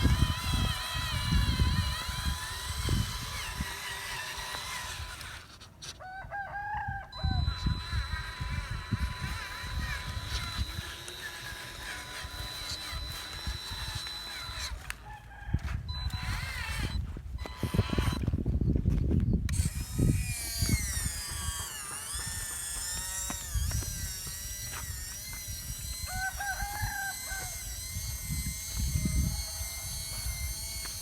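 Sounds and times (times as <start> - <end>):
rooster crowing: 6.0 - 7.4, 15.0 - 15.8, 26.1 - 27.6
steady high whine: 7.2 - 15.0, 15.8 - 18.3, 19.5 - 31.0.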